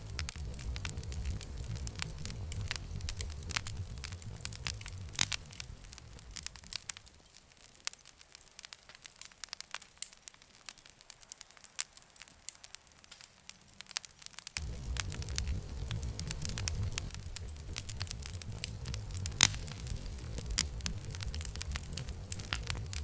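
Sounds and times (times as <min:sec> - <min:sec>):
low rumble: 0:00.0 - 0:07.1, 0:14.6 - 0:23.0
wood fire crackling: 0:00.0 - 0:23.0.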